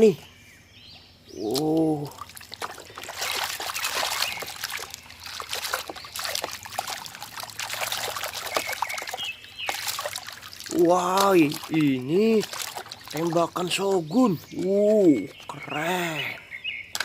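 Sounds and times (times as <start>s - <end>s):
water trickling and splashing: 1.3s - 17.0s.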